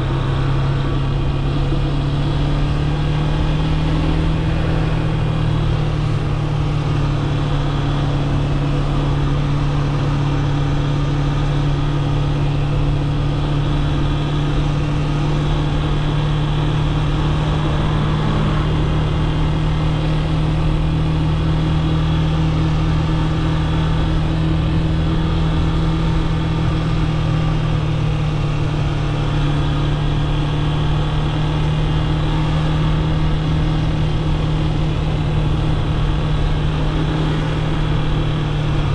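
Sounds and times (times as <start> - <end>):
motorcycle engine running: 0.0 - 38.9
road and wind noise: 0.0 - 38.9.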